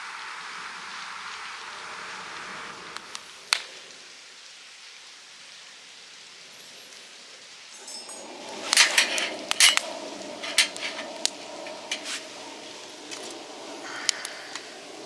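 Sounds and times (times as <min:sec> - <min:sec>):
steady hiss: 0:00.0 - 0:15.0
small hard objects clinking: 0:07.7 - 0:12.3.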